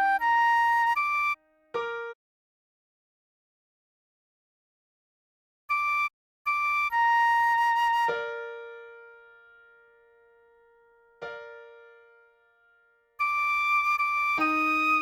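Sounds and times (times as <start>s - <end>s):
recorder melody: 13.3s - 15.0s.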